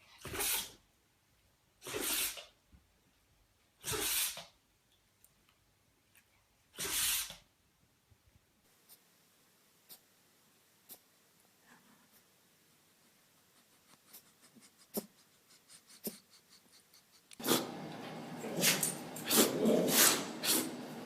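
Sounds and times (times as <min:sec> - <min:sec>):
dog sneezing: 0:00.2 - 0:00.8, 0:01.8 - 0:02.5, 0:03.8 - 0:04.5, 0:06.8 - 0:07.4, 0:17.4 - 0:17.8, 0:18.4 - 0:20.8.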